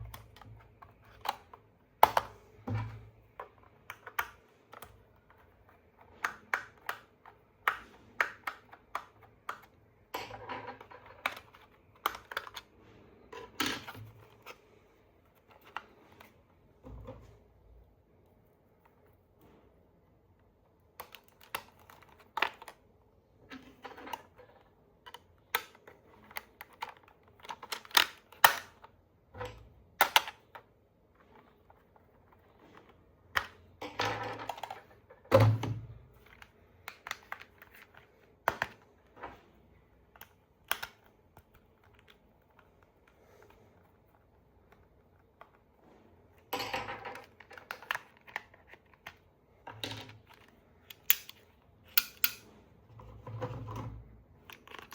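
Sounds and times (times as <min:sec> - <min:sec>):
plastic toy parts clicking: 0:23.6 - 0:28.9, 0:30.0 - 0:30.6, 0:40.1 - 0:42.8, 0:49.8 - 0:52.5, 0:54.4 - 0:54.9.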